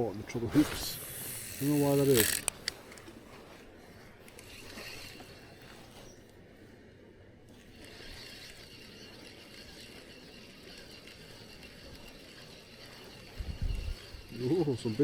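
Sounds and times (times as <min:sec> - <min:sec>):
fishing reel whirring: 0:00.8 - 0:03.0, 0:04.3 - 0:06.3, 0:07.5 - 0:15.0.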